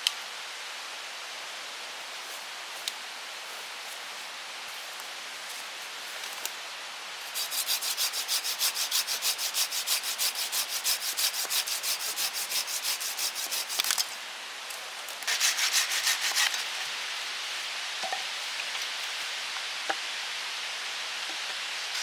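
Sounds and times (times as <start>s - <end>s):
steady rain: 0.0s - 22.0s
fast scraping strokes: 7.3s - 14.1s, 15.3s - 17.7s.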